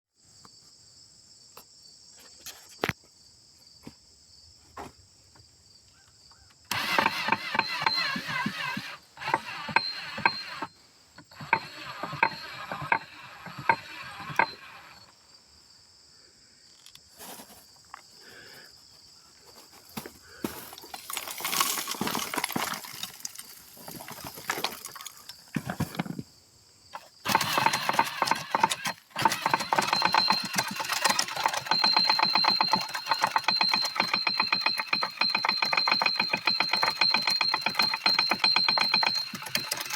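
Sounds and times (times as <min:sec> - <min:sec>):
charcoal grinder crunching: 0:06.7 - 0:15.1, 0:20.0 - 0:26.2, 0:27.0 - 0:39.9.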